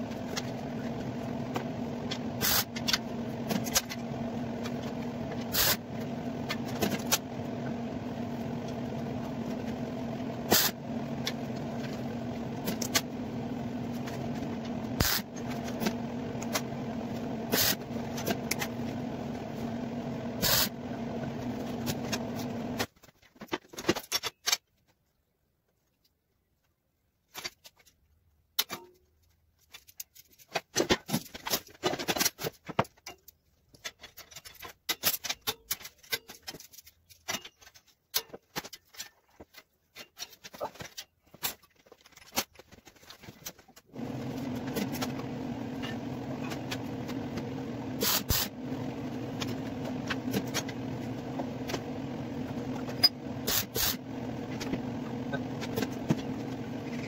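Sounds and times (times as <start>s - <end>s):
steady machine hum: 0.0s - 22.9s, 43.9s - 57.0s
metal parts clicking and knocking: 29.6s - 43.6s.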